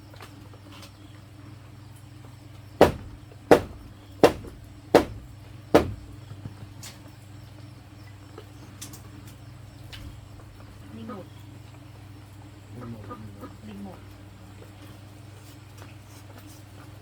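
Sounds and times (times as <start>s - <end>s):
low background hum: 0.0s - 17.0s
tool striking bamboo: 2.8s - 6.2s.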